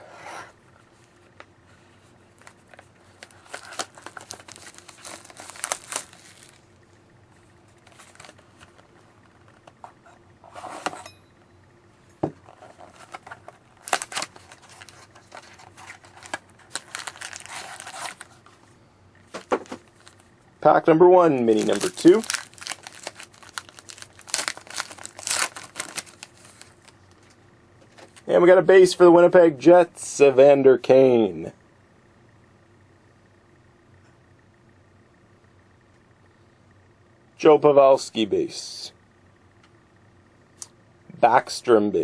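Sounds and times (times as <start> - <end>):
plastic wrapping crinkling and tearing: 2.4 - 6.6, 12.6 - 18.4, 19.7 - 20.2, 21.5 - 27.0.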